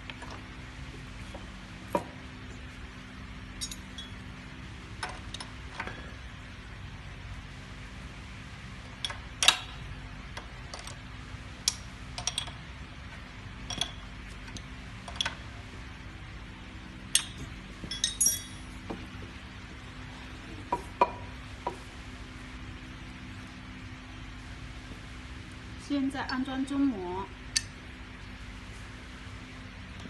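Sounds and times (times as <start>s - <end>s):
steady low hum: 0.0s - 30.0s
steel tools clinking on metal: 3.6s - 4.2s, 17.2s - 18.7s.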